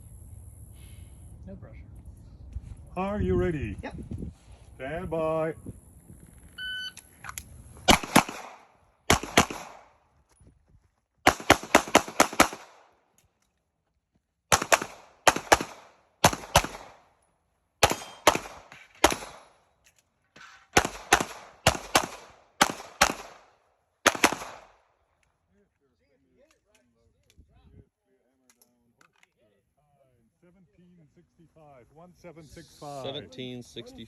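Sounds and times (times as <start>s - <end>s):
pistol shots: 7.9s - 10.0s, 11.2s - 12.9s, 14.5s - 17.1s, 17.8s - 19.6s, 20.6s - 24.8s.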